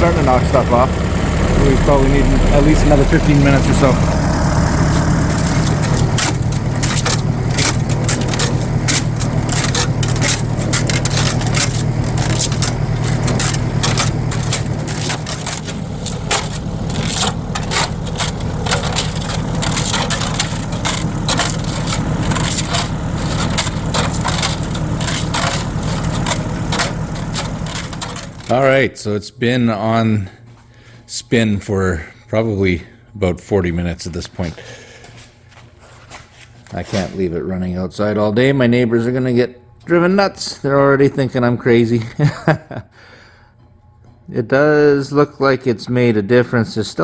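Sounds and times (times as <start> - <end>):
loose contents rattling in tank: 0.0 - 28.6
spinning rig motor hum: 0.0 - 28.7.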